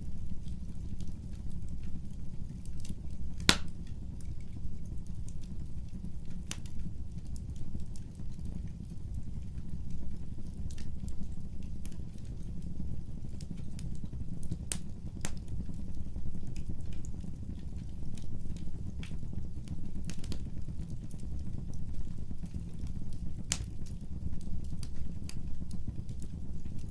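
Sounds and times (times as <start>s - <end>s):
fire crackling: 0.0s - 26.9s
fire rumbling: 0.0s - 26.9s
sharp pops of burning wood: 3.4s - 3.8s.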